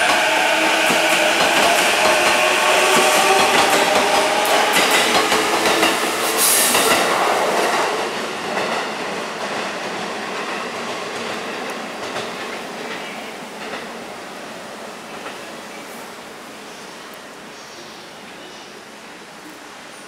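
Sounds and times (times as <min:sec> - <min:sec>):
train wheels clattering: 0:00.0 - 0:14.0.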